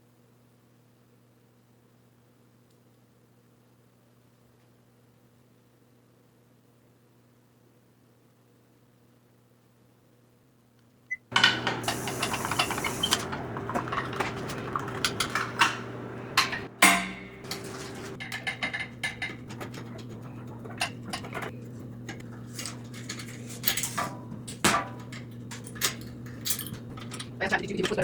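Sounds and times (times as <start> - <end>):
steady low hum: 11.1 - 28.0
metal parts and tools clinking: 11.3 - 28.0.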